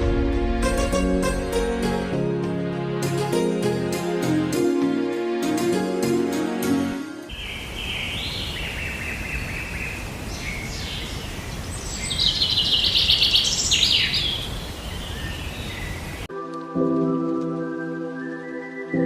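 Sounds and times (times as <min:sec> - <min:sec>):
songbird singing: 0:07.3 - 0:16.3
steady background hiss: 0:07.3 - 0:16.3.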